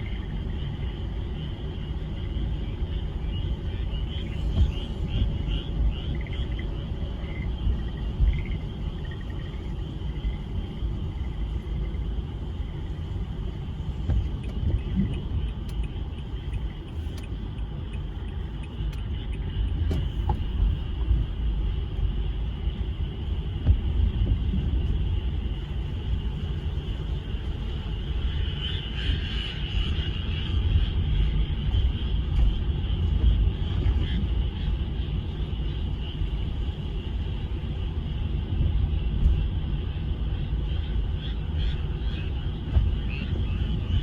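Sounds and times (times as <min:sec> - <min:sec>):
heavy low rumble: 0:00.0 - 0:44.0
frog chorus trilling: 0:03.2 - 0:12.0, 0:40.7 - 0:44.0.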